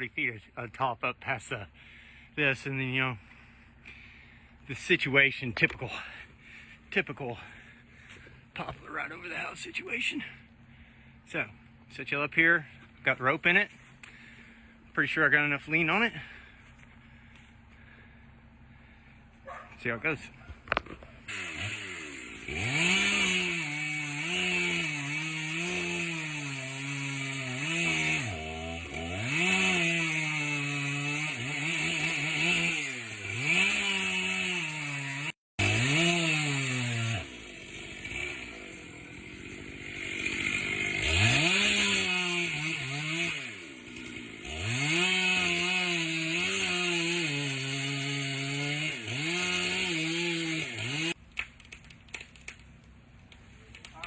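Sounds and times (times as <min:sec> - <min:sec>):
chainsaw cutting wood: 0:03.7 - 0:10.7, 0:19.8 - 0:54.0.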